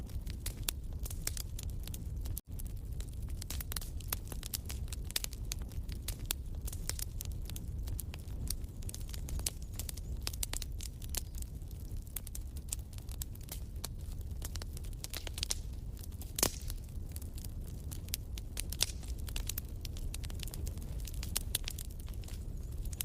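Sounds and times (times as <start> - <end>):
low rush of flame: 0.0 - 23.0
wood fire crackling: 0.0 - 23.0.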